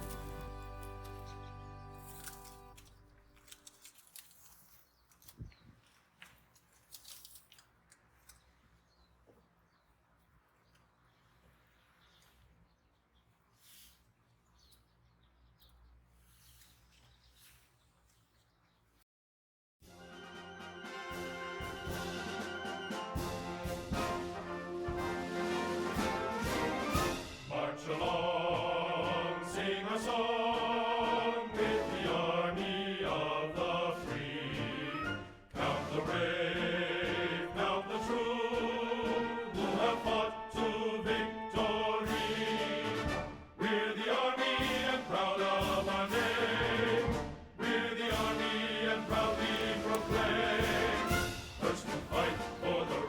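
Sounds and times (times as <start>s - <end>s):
background music with choir voices: 0.0s - 2.8s, 19.9s - 53.0s.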